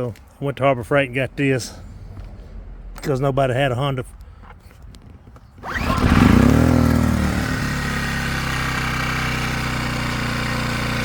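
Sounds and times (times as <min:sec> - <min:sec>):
small generator engine starting: 0:05.6 - 0:11.0.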